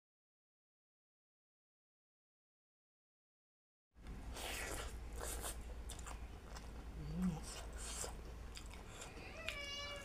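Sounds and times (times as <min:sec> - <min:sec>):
chewing and lip-smacking: 0:04.4 - 0:10.0.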